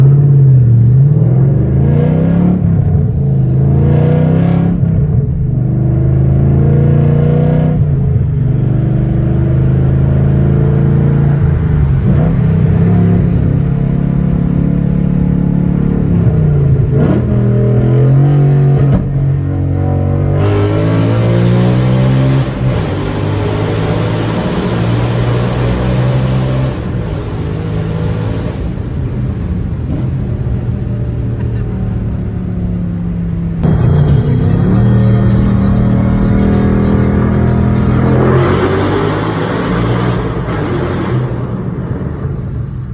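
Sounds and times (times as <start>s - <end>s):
car engine accelerating hard: 0.0s - 42.9s.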